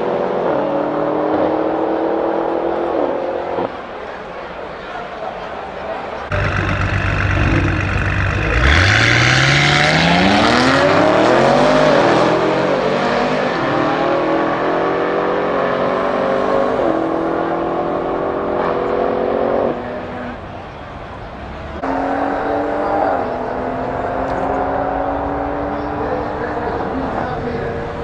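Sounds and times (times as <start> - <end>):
car engine accelerating hard: 6.3 - 20.6, 21.4 - 28.0.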